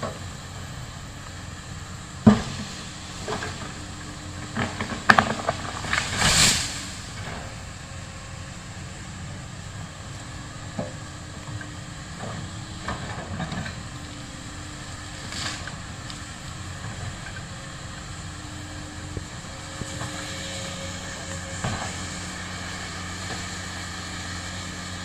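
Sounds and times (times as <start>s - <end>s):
excavator diesel engine running: 0.0s - 25.0s
short hiss: 6.0s - 7.1s.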